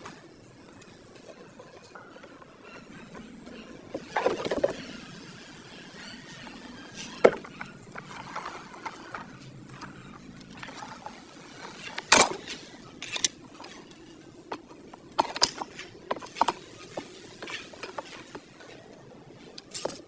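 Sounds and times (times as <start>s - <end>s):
faint steady background noise: 0.0s - 20.0s.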